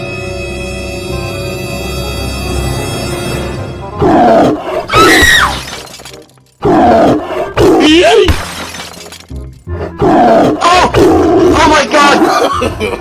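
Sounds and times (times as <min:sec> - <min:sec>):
scary background music: 0:00.0 - 0:05.0.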